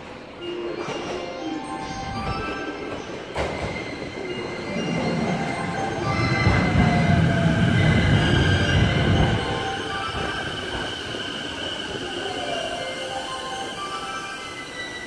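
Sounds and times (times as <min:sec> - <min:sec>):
steady high-pitched tones: 0:00.0 - 0:15.0
train wheels rumbling: 0:02.9 - 0:13.8.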